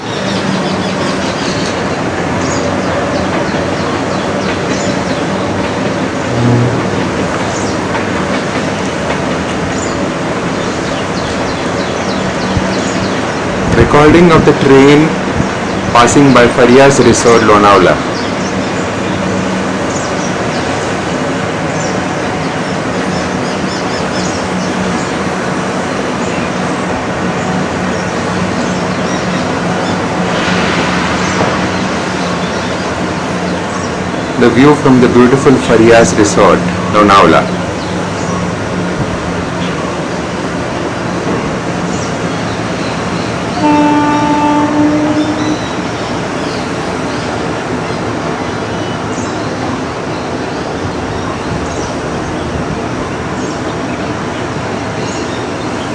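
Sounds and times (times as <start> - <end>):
train rattling past: 0.0 - 55.9
short low tone: 6.3 - 7.0.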